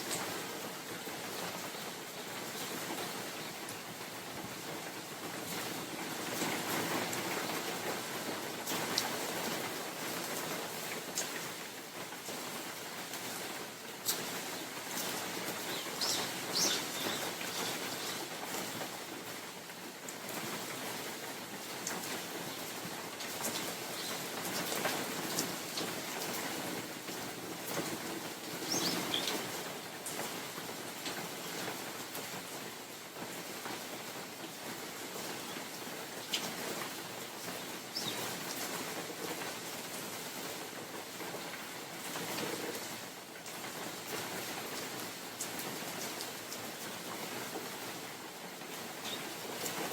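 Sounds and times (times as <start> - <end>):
steady rain falling: 0.0 - 49.9
wind through trees: 0.0 - 49.9
bird chirps: 15.7 - 18.2.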